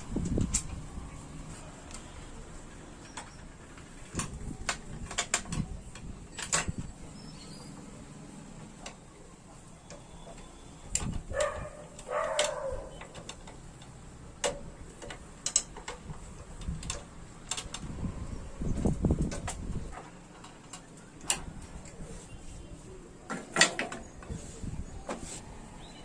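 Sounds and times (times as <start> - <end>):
metal clicks and taps: 3.0 - 6.7, 8.8 - 9.1, 9.8 - 17.9.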